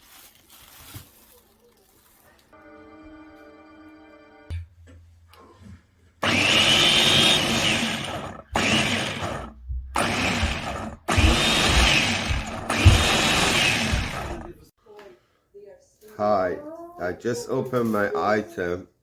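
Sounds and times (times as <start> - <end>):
electric food chopper whining: 6.2 - 14.7.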